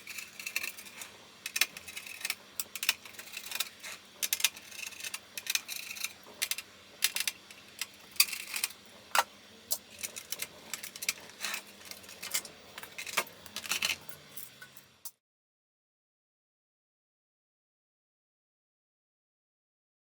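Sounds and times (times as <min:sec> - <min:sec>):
faint steady hum: 0:00.0 - 0:15.2.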